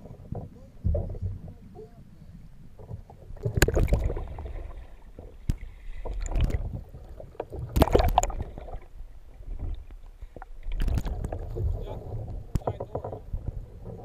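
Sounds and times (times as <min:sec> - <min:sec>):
water splashing around kayak: 0:00.0 - 0:14.0.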